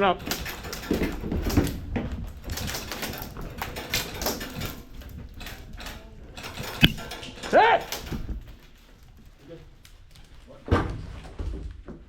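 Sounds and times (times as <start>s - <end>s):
players moving: 0.0s - 8.8s
airsoft guns firing: 6.8s - 7.2s.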